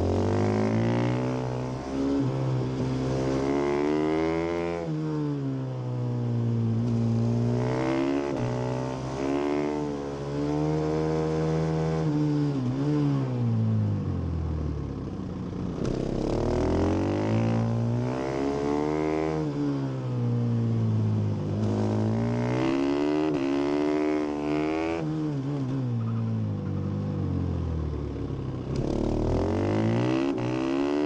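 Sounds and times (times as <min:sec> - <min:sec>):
motorcycle engine revving: 0:00.0 - 0:05.0, 0:06.8 - 0:13.2, 0:15.5 - 0:19.8, 0:21.5 - 0:26.9, 0:27.6 - 0:31.0.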